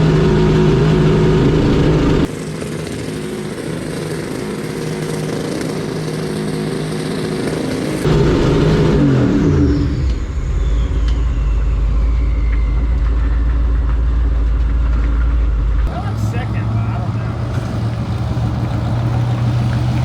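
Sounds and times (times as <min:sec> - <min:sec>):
car engine running: 0:15.9 - 0:20.0.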